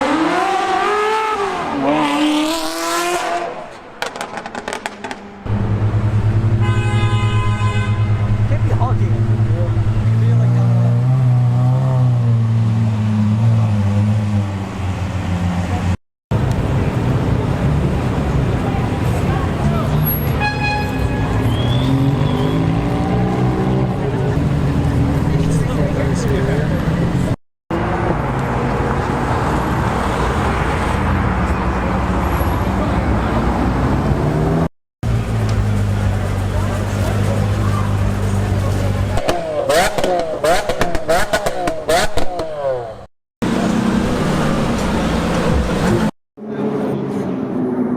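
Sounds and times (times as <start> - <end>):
road noise: 0.0 - 47.9
car engines idling: 35.0 - 46.1.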